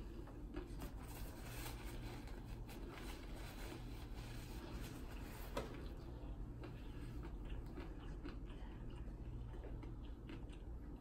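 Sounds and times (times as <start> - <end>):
low room hum: 0.0 - 11.0
person chewing food: 0.0 - 11.0.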